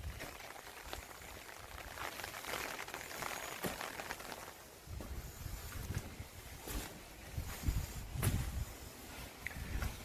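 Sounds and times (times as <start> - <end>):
light rain pattering: 0.0 - 4.8.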